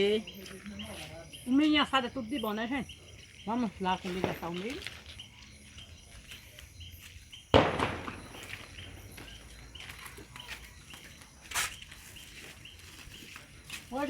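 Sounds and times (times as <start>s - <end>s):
crickets chirping: 0.0s - 14.0s
loud bang: 7.6s - 9.0s
sharp crack: 7.6s - 9.1s.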